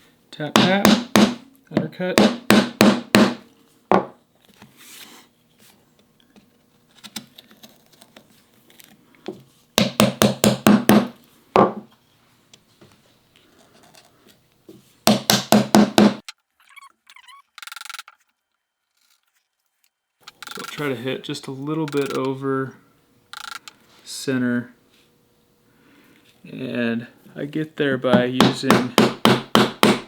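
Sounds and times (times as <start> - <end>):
mallet knocking on chisel: 2.2 - 4.1, 28.1 - 30.0
small scraping sounds: 4.4 - 9.6, 13.0 - 15.0, 16.7 - 21.0.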